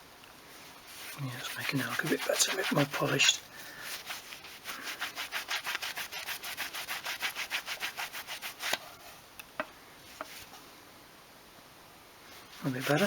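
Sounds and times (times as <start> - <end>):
cloth rubbing on plastic: 0.6 - 9.2, 12.3 - 13.0.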